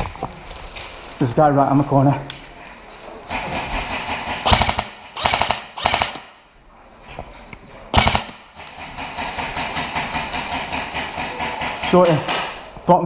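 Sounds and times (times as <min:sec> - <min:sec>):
airsoft rifle bursts: 0:04.4 - 0:06.2.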